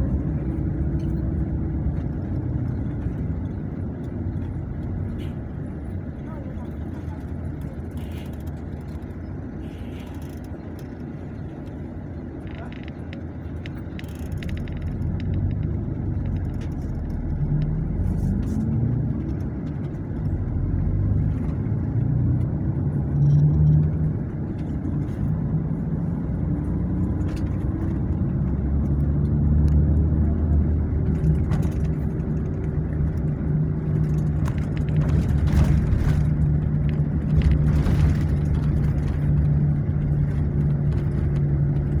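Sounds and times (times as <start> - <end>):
road noise: 0.0 - 42.0
car engine accelerating: 13.5 - 42.0.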